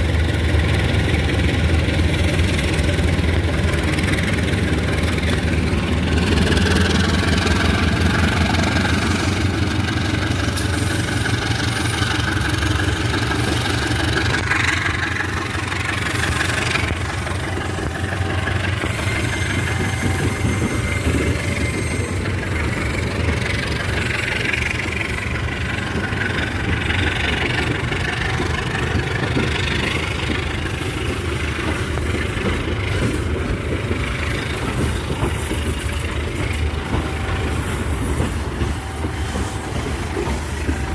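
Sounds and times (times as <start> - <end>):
diesel locomotive engine running: 0.0 - 40.9.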